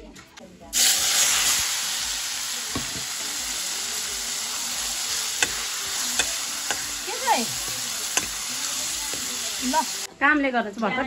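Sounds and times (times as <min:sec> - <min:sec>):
meat sizzling in hot oil: 0:00.7 - 0:10.1
metal spatula clicking on pan: 0:08.1 - 0:08.4.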